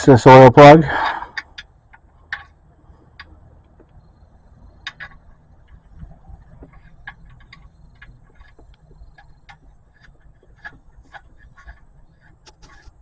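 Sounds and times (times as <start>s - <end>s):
low steady rumble: 0.0s - 13.0s
drain plug clicking and ticking: 4.7s - 11.8s.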